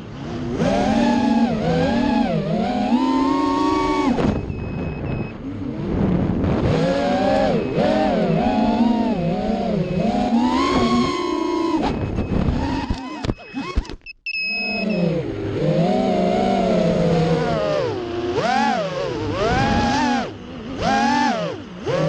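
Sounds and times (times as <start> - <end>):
quadcopter motors whining: 0.0 - 22.0
clicks: 11.8 - 14.7.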